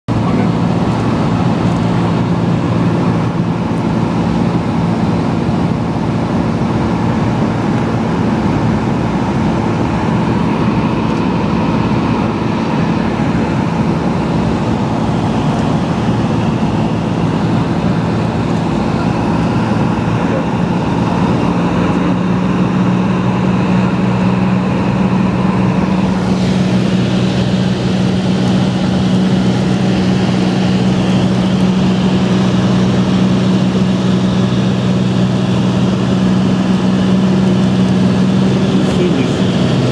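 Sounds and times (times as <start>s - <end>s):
aircraft engine and propeller drone: 0.1s - 39.9s.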